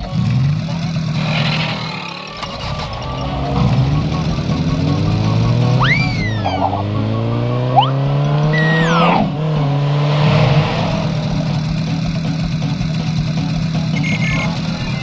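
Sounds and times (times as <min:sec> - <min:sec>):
engine-like hum: 0:02.3 - 0:15.0
short falling whistle: 0:05.3 - 0:07.0, 0:07.7 - 0:09.4
brief high beeps: 0:07.8 - 0:08.0.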